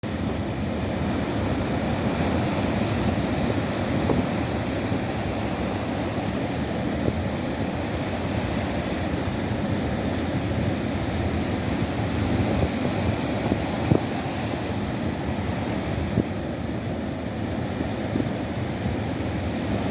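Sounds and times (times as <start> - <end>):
ocean waves washing in: 0.0 - 19.9.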